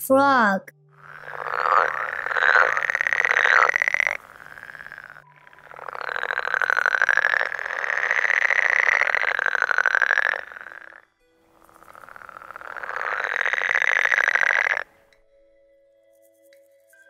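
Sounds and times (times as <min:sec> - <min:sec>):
frog trilling croak: 0:01.0 - 0:11.0, 0:11.6 - 0:15.0.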